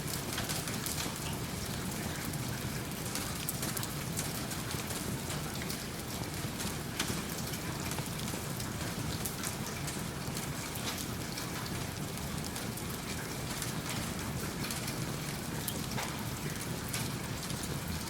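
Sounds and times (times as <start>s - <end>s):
steady rain: 0.0s - 18.0s
wood fire crackling: 3.1s - 10.0s.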